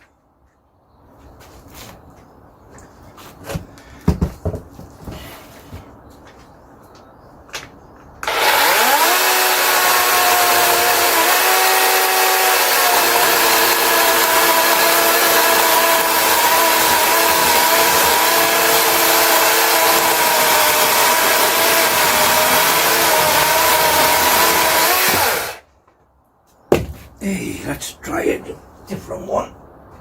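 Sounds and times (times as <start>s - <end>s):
electric chainsaw cutting log: 8.2s - 25.6s.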